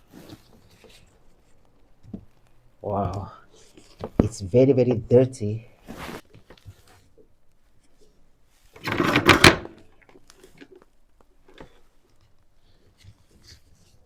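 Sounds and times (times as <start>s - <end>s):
scraping rustle: 5.8s - 7.1s
plastic parts clicking and knocking: 8.8s - 11.8s.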